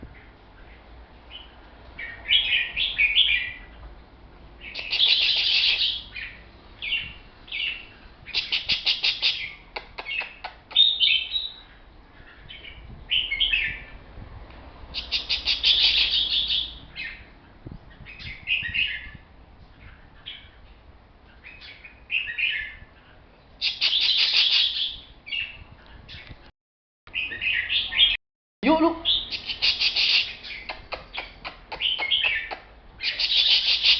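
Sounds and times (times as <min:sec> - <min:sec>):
songbird singing: 0:00.0 - 0:14.1, 0:14.9 - 0:26.5, 0:27.1 - 0:33.9.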